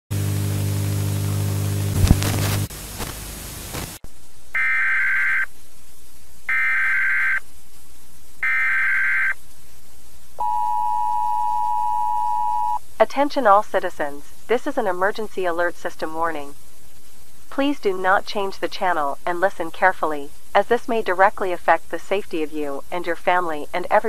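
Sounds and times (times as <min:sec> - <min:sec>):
loud low buzz with static: 0:00.1 - 0:05.6
quiet hiss: 0:00.2 - 0:24.0
warbling data tones: 0:04.6 - 0:05.5, 0:06.5 - 0:07.4, 0:08.4 - 0:09.4
two-tone attention signal: 0:10.4 - 0:12.8.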